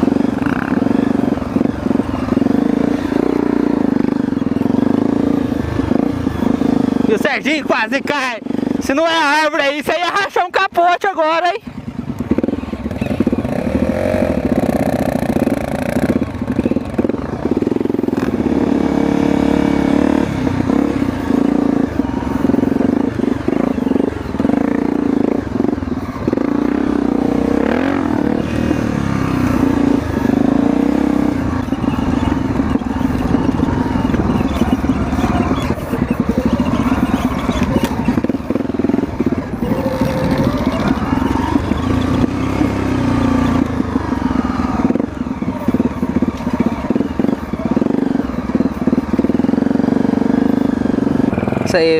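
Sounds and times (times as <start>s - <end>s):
motorcycle engine revving: 0.0s - 51.9s
rattling over rough ground: 11.7s - 51.9s.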